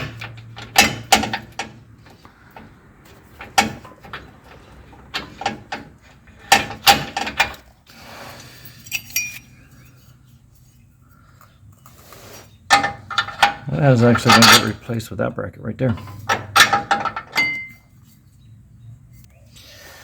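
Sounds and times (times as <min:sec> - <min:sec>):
metal tools clinking and knocking: 0:08.4 - 0:10.8, 0:12.7 - 0:15.0, 0:15.8 - 0:18.3
metal scrape with ringing tone: 0:08.5 - 0:10.8.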